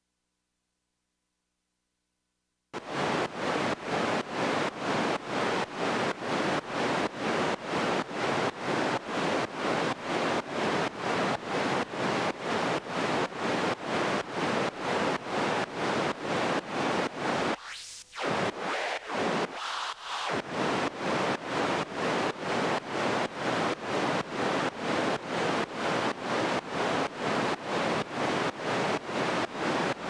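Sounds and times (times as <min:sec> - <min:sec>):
pumping synthesizer noise: 0:17.4 - 0:21.4.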